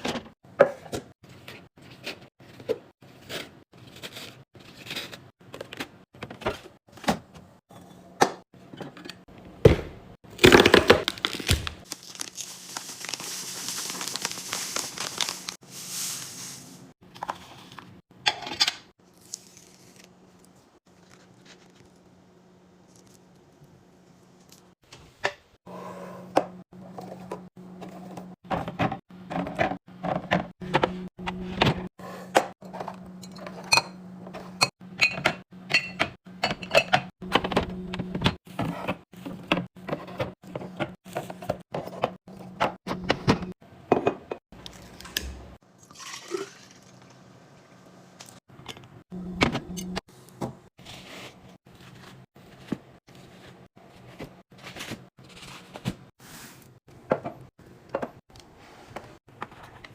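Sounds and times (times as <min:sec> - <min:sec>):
containers clicking and clinking: 0:44.6 - 0:47.2
liquid pouring into container: 0:45.8 - 0:47.2.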